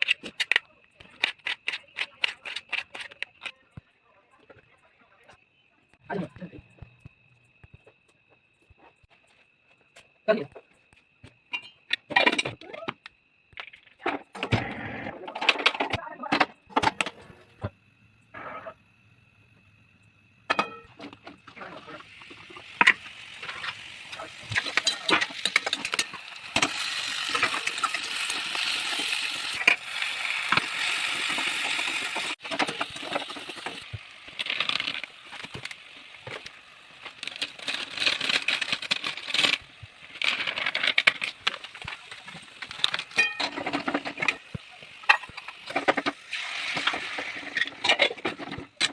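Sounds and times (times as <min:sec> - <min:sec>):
food sizzling in hot oil: 0:20.5 - 0:48.2
utensils clicking and knocking: 0:24.4 - 0:29.8.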